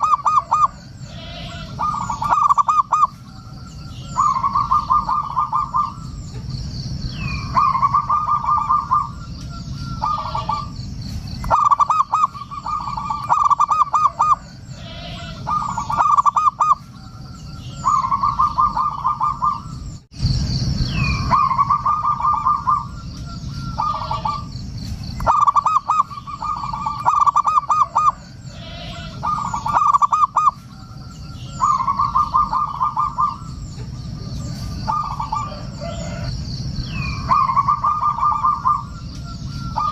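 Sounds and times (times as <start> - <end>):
dove cooing: 0.0 - 6.5, 7.2 - 19.8, 21.0 - 24.6, 25.2 - 39.9
faint high chirping: 0.0 - 39.9.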